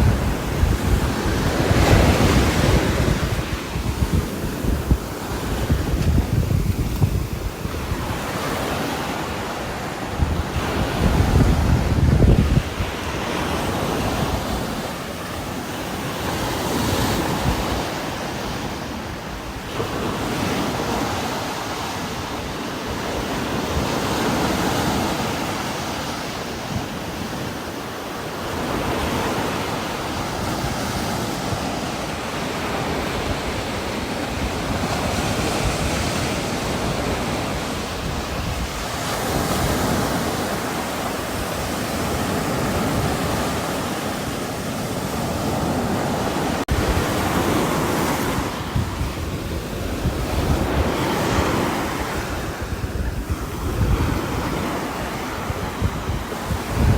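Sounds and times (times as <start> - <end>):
strong wind gusting: 0.0 - 56.9.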